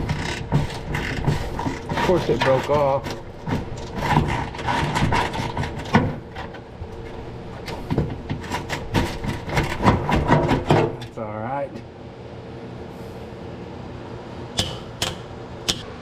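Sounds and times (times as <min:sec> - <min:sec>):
hand tools clicking and scraping: 0:00.0 - 0:11.2, 0:14.6 - 0:16.0.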